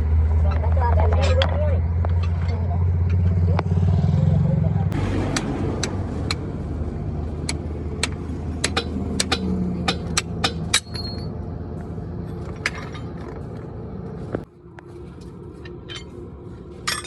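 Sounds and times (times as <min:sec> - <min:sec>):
low engine rumble: 0:00.0 - 0:17.0
metal clinks and knocks: 0:08.6 - 0:11.5, 0:12.2 - 0:13.8, 0:15.2 - 0:17.0.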